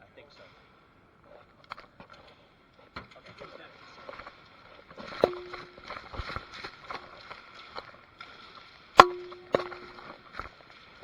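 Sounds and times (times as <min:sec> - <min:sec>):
brief metallic ring: 0:05.2 - 0:05.8, 0:09.0 - 0:10.1
airsoft gun cracks: 0:05.2 - 0:05.9, 0:09.0 - 0:10.2.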